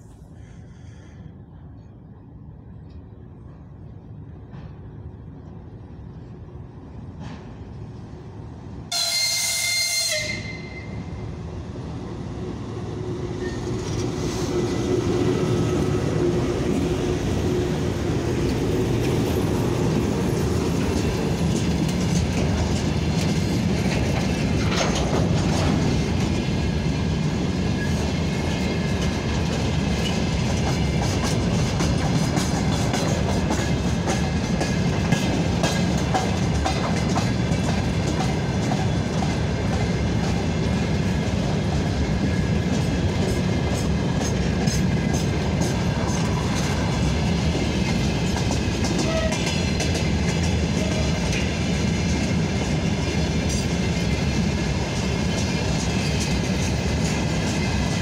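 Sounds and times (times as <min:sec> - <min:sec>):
train wheels rumbling on rail: 0:00.0 - 0:58.0
locomotive horn blast: 0:08.9 - 0:11.0.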